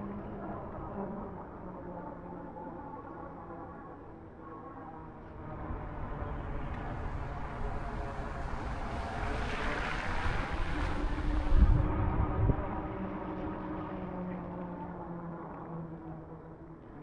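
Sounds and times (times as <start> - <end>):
wind rushing over microphone: 5.4 - 14.0.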